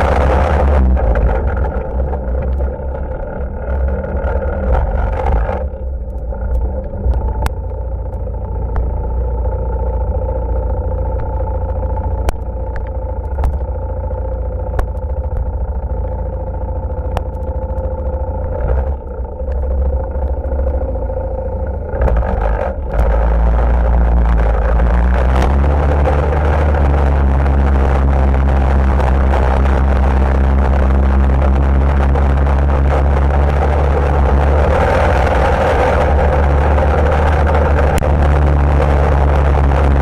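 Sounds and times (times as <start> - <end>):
atv engine running: 0.0 - 40.0
sharp clicks and knocks: 11.1 - 16.1.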